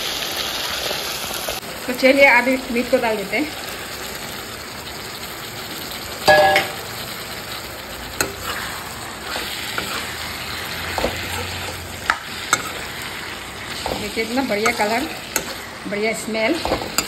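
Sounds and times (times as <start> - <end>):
meat sizzling in a pan: 0.0 - 17.0
metal spatula clanking on pan: 6.2 - 6.9, 8.2 - 8.7, 10.8 - 13.0, 13.8 - 15.7, 16.6 - 17.0
spatula scraping and tapping: 9.3 - 10.2, 10.8 - 12.9, 13.7 - 15.6.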